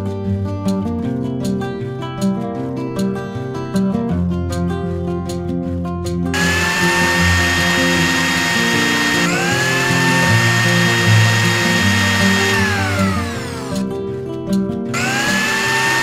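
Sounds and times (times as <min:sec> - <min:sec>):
small blender motor whining: 0:06.4 - 0:13.9, 0:15.0 - 0:16.0.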